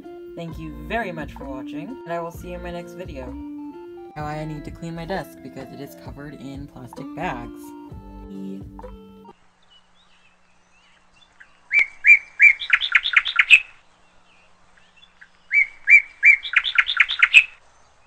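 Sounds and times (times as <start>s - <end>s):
songbird singing: 0.0s - 18.0s.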